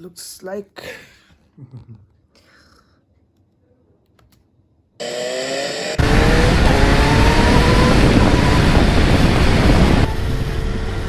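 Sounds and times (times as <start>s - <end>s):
motorcycle engine accelerating: 5.0s - 11.0s
wind and road noise: 6.0s - 11.0s.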